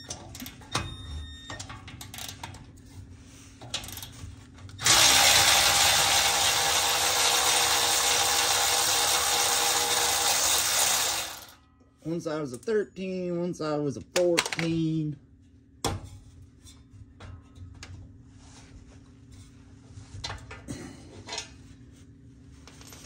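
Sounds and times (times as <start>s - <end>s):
power tool running: 4.8s - 11.6s.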